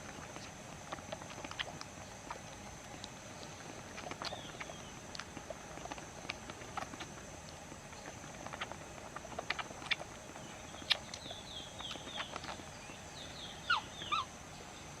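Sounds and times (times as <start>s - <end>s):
monkey chirping: 13.2s - 14.3s
monkey squeaks: 13.7s - 14.3s.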